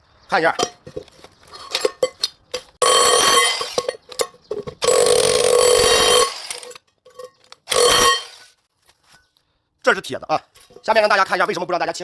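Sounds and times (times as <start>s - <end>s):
demolition hammer on iron scrap: 2.8s - 8.6s.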